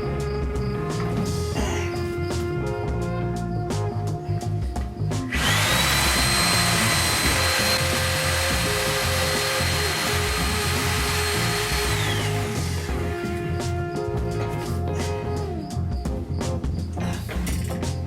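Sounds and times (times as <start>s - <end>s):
background music: 0.0s - 18.0s
power tool motor whining: 5.3s - 13.4s.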